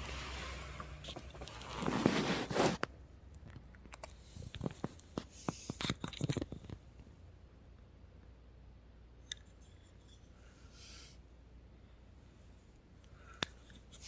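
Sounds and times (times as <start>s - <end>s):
plastic and card clicks and scrapes: 0.0s - 6.8s.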